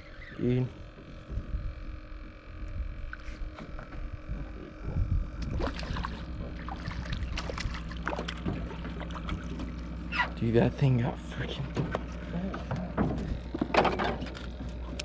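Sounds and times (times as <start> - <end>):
low steady rumble: 0.0 - 15.0
water sloshing around boat: 3.0 - 15.0
knocks and rattles on hull: 5.6 - 10.4, 11.4 - 15.0.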